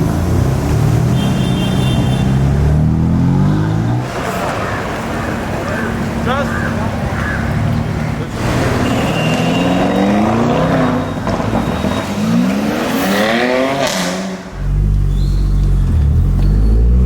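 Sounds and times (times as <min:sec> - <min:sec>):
car engine accelerating hard: 0:07.2 - 0:17.0.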